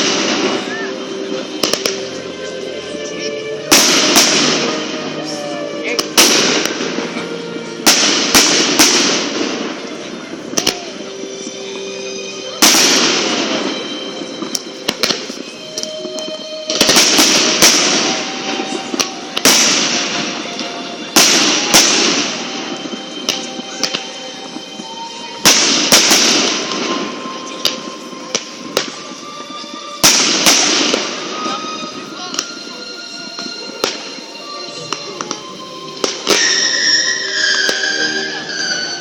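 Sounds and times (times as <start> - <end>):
fireworks bangs: 0.0 - 2.6, 3.6 - 11.7, 12.4 - 39.0
faint music: 0.0 - 39.0
fireworks crackle: 0.0 - 39.0.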